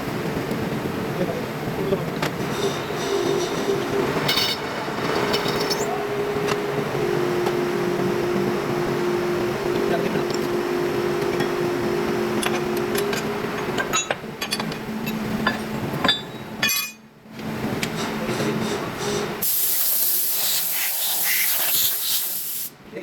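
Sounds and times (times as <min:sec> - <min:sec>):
machine humming: 0:02.4 - 0:15.4
loud hiss: 0:19.4 - 0:22.8.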